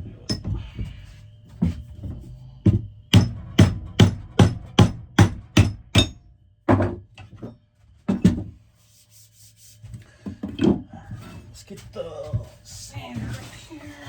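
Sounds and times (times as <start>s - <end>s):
hammer striking axe head: 2.7s - 6.2s.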